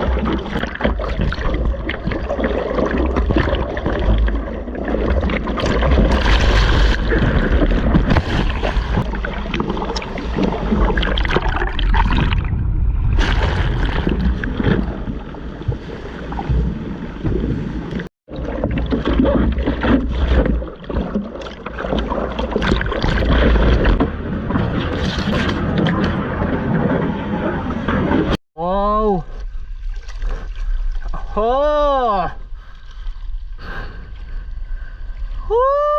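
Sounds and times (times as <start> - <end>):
seawater rushing and splashing: 0.0 - 28.4
heavy low rumble: 5.8 - 15.8.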